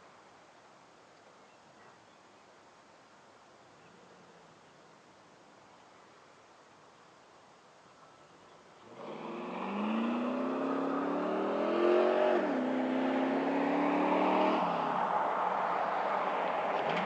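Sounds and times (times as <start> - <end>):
truck engine accelerating: 8.9 - 17.0.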